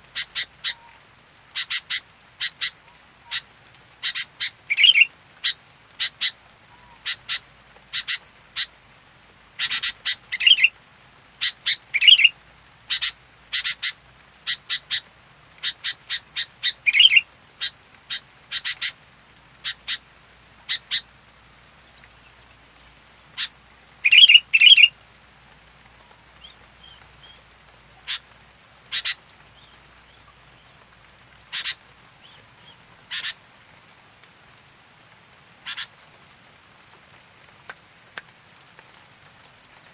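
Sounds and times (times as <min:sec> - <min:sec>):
bird chattering calls: 0:00.2 - 0:00.9, 0:01.6 - 0:03.4, 0:04.0 - 0:08.7, 0:09.6 - 0:10.7, 0:11.4 - 0:12.3, 0:12.9 - 0:15.0, 0:15.6 - 0:19.0, 0:23.4 - 0:24.9, 0:28.9 - 0:29.7, 0:31.5 - 0:33.4, 0:35.6 - 0:35.9.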